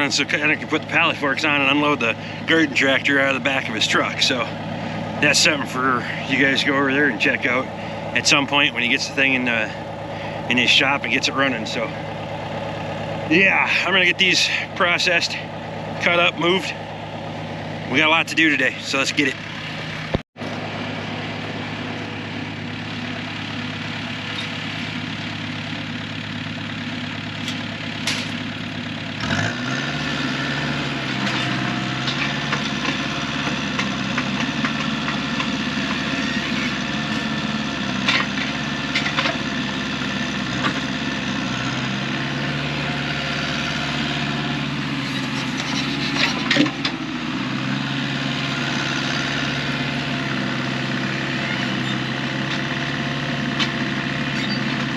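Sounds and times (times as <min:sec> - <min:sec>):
engine idling and revving: 0:00.0 - 0:54.9.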